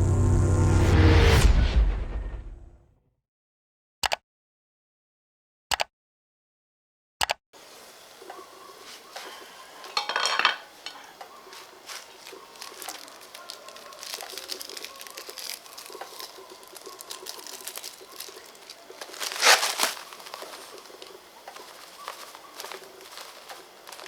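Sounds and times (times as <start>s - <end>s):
wet chewing and smacking: 12.0s - 24.0s.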